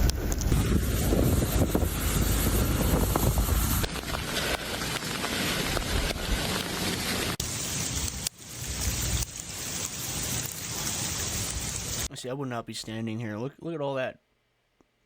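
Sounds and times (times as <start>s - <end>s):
wind buffeting microphone: 0.0s - 6.6s
steady hiss: 0.0s - 12.1s.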